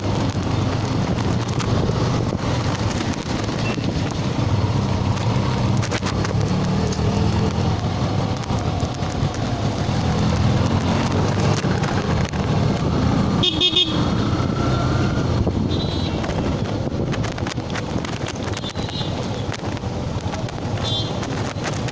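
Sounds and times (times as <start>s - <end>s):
motorcycle engine running: 0.0s - 21.9s
traffic noise: 0.0s - 21.9s
wind: 0.0s - 21.9s
vehicle horn toots: 13.4s - 14.2s, 15.6s - 16.2s.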